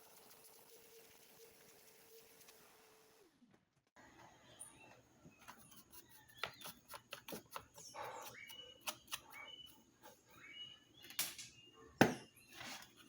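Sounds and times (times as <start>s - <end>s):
faint high chirps: 4.2s - 13.0s.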